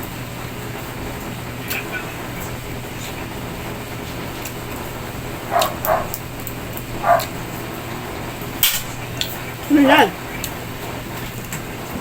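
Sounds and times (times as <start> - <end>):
steady background hum: 0.0 - 12.0
dog barking: 5.4 - 6.3, 6.9 - 7.6.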